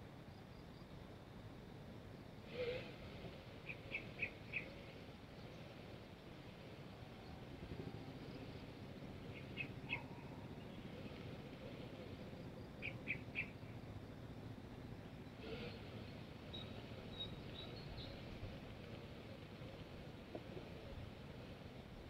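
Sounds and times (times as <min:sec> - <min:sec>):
low steady rumble: 0:00.0 - 0:22.0
faint bird chirps: 0:02.4 - 0:06.0, 0:06.9 - 0:14.0, 0:15.1 - 0:21.8.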